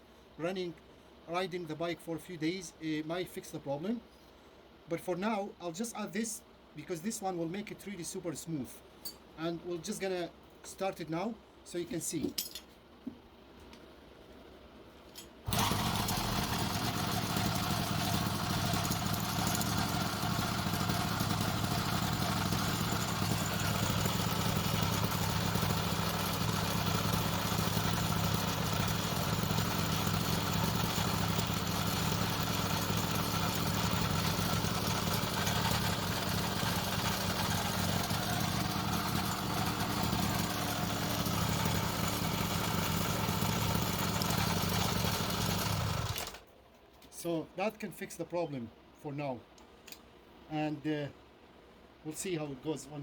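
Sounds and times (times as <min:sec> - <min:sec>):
drive chain turning: 0:15.5 - 0:46.4
motorized bicycle engine idling: 0:15.5 - 0:46.4.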